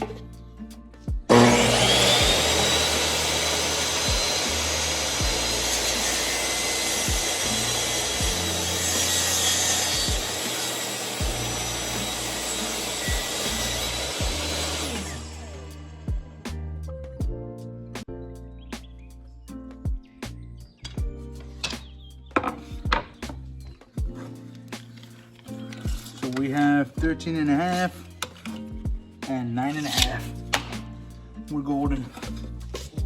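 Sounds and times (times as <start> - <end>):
background music with steady beat: 0.0 - 33.0
table saw cutting wood: 1.3 - 16.1.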